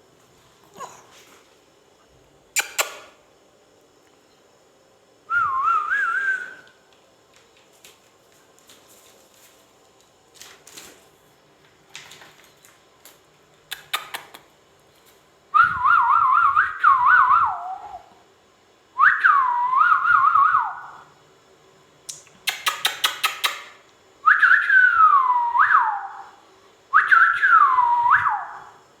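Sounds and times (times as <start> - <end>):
sharp clicking chirps: 2.6 - 3.2, 13.7 - 14.5, 22.1 - 23.8.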